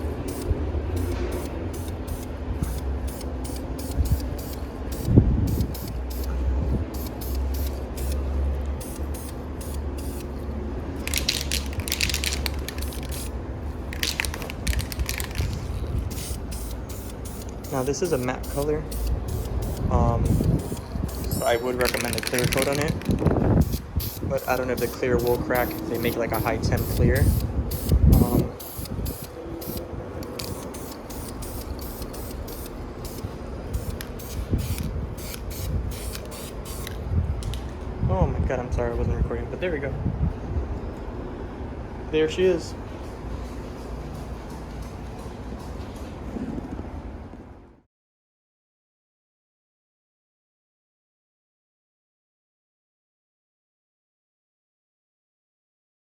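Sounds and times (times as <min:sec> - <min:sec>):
steady low hum: 0:00.0 - 0:42.1
spray-paint can hissing: 0:00.2 - 0:37.0.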